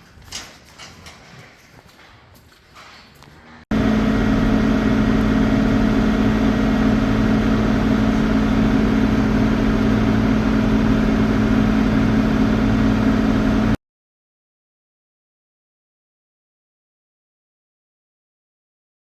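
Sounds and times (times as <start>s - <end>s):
engine running steadily: 3.4s - 13.8s.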